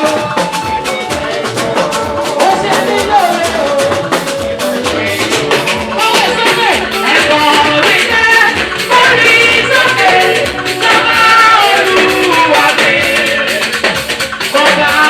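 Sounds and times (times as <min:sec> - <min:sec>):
gospel band music: 0:00.0 - 0:15.0
people singing: 0:00.0 - 0:15.0
percussion beat: 0:00.0 - 0:15.0.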